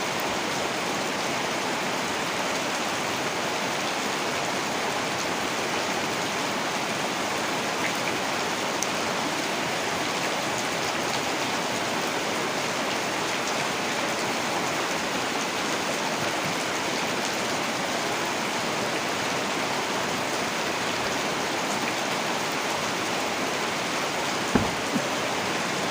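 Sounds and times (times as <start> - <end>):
heavy rain falling: 0.0 - 25.9
dull thump: 24.5 - 25.2.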